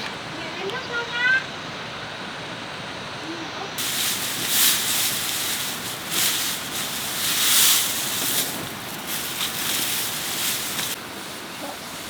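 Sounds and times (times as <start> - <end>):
water running and splashing: 3.8 - 12.0.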